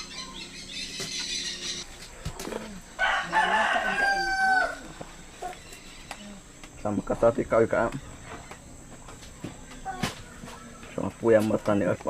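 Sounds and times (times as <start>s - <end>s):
rooster crowing: 2.9s - 5.0s.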